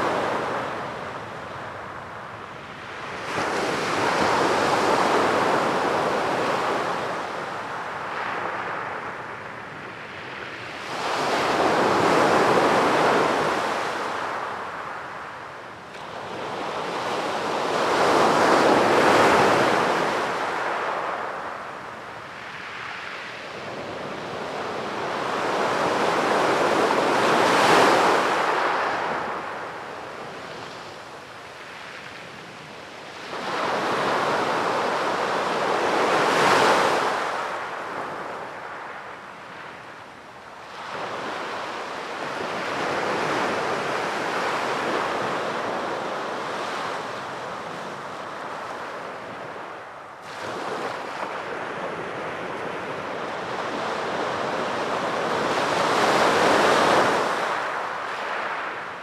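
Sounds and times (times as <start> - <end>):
sea waves breaking on shore: 16.0 - 39.8, 40.6 - 59.0.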